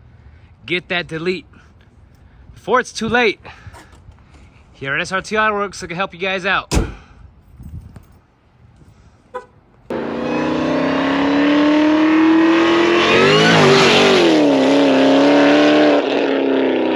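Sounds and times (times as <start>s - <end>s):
engine running and revving: 9.9s - 16.9s.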